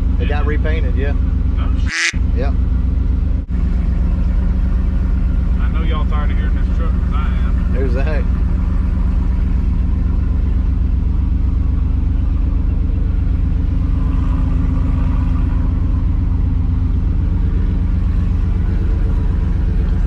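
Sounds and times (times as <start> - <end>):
truck engine and exhaust droning: 0.0 - 20.0.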